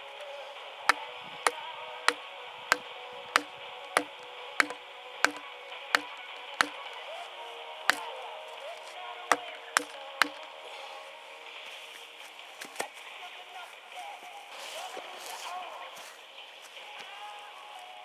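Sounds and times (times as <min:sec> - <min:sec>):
blade chopping into wood: 0:00.9 - 0:06.9, 0:09.3 - 0:10.4.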